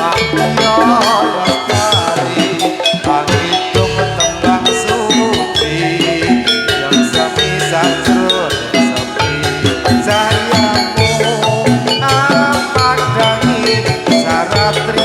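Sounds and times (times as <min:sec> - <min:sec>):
metallophones ringing: 0:00.0 - 0:15.0
hand drum strokes: 0:02.1 - 0:15.0.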